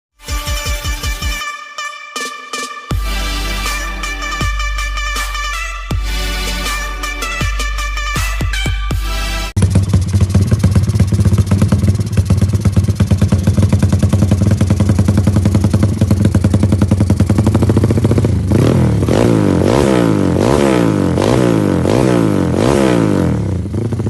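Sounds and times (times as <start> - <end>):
motorcycle engine idling: 9.6 - 24.0
motorcycle throttle revving: 9.6 - 24.0.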